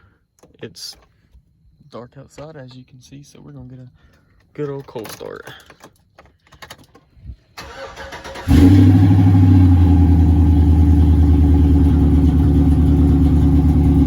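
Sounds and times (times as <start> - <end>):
truck engine idling loudly: 9.3 - 14.0.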